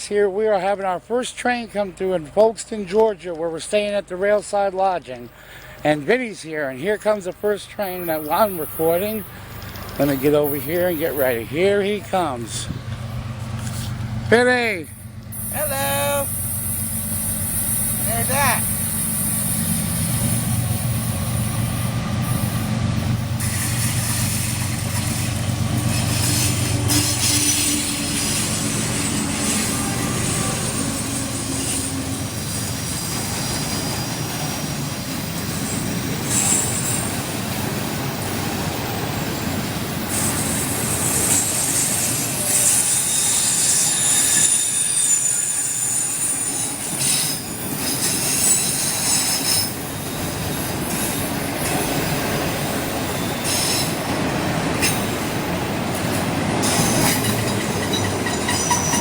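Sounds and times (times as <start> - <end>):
train cars rumbling: 0.0 - 59.0
locomotive engine drone: 5.2 - 46.0
high-pitched wheel squeal: 23.4 - 34.6, 38.1 - 54.0, 56.6 - 59.0.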